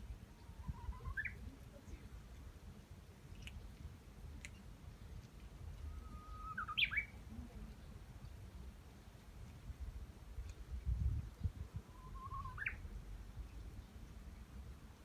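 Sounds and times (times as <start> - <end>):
drawn-out rising calls: 0.4 - 1.4, 5.8 - 7.2.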